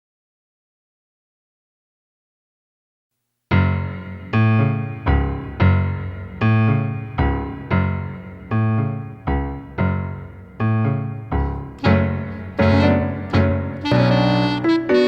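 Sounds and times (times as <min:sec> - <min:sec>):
solo piano tango chords: 0:03.5 - 0:15.0.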